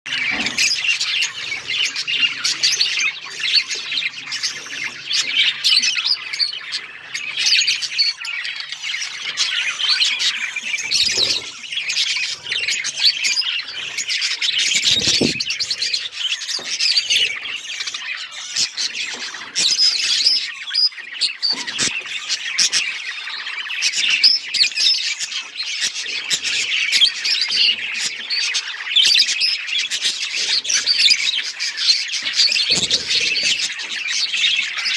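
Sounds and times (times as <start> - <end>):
budgies chattering and warbling: 0.1 - 34.9
low thumps: 14.9 - 15.6.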